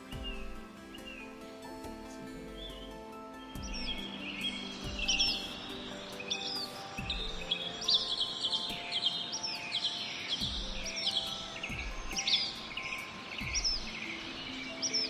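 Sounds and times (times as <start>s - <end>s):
birds chirping: 0.0s - 15.0s
soft background music: 0.0s - 15.0s.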